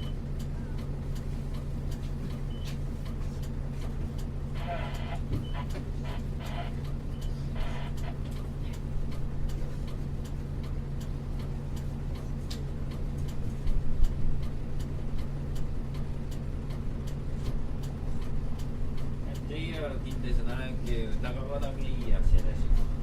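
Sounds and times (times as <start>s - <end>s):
bus diesel engine idling: 0.0s - 23.0s.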